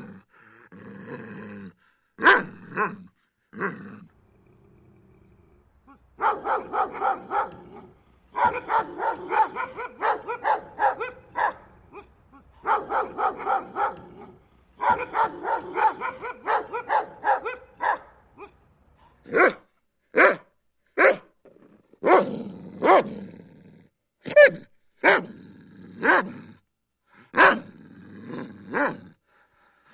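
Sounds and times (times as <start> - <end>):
dog barking: 2.2 - 2.9, 6.2 - 21.3, 22.0 - 23.2, 24.2 - 25.3, 26.0 - 26.3, 27.4 - 27.7.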